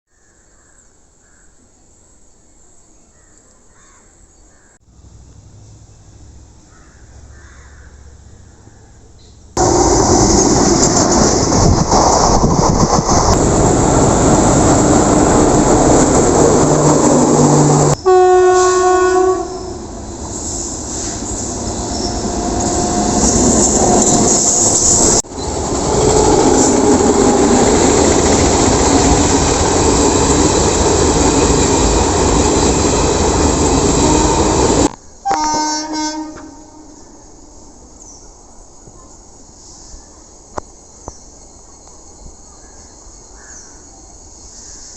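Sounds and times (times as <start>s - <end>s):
locomotive horn: 17.2s - 24.4s, 33.8s - 37.0s.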